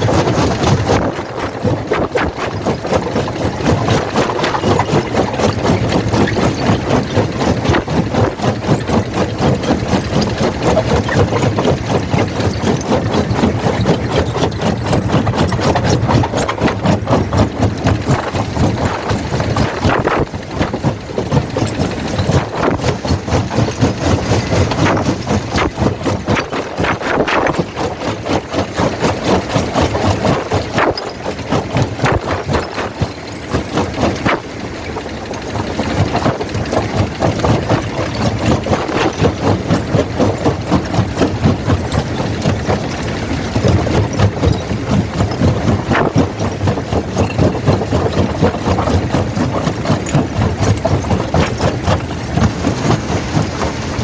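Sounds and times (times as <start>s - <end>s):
rock cracking in crusher: 0.0s - 54.0s
heavy machine drone: 50.7s - 54.0s.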